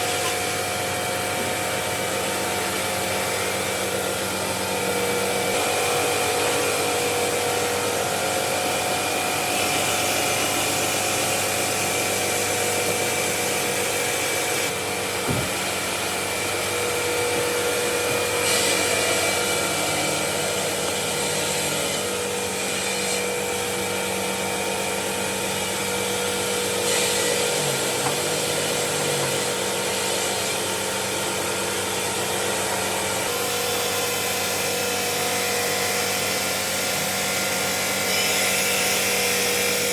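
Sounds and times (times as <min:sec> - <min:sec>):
stone-working machinery hiss and whine: 0:00.0 - 0:39.9.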